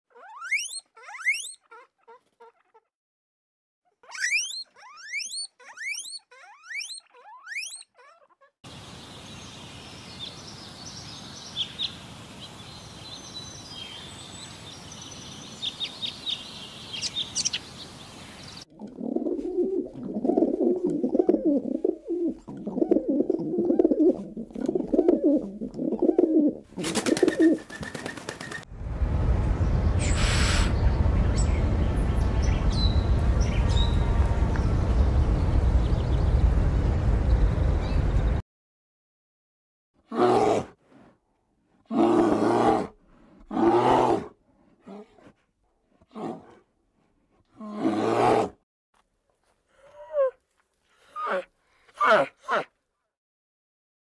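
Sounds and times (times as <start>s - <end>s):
guinea pigs squealing: 0.1s - 2.9s, 4.0s - 8.6s
small birds chirping: 4.1s - 18.7s, 26.8s - 28.7s, 29.6s - 38.4s
pigeons cooing: 18.8s - 28.0s
burst of wingbeats: 26.8s - 28.7s
steady low rumble: 28.7s - 38.4s.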